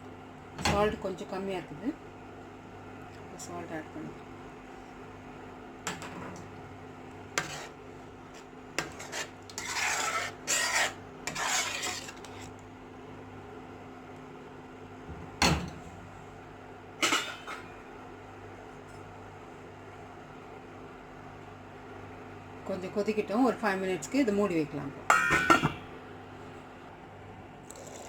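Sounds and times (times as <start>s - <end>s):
metal spoon stirring in pot: 7.3s - 12.6s.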